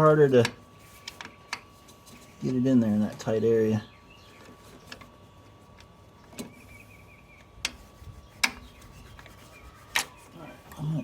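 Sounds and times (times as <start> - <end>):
faint squeak: 8.6 - 11.0.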